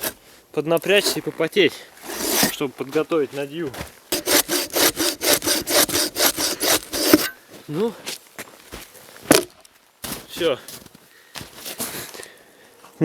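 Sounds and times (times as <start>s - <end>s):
bow saw cutting log: 0.0s - 0.2s, 0.8s - 1.3s, 2.0s - 2.6s, 4.1s - 7.4s.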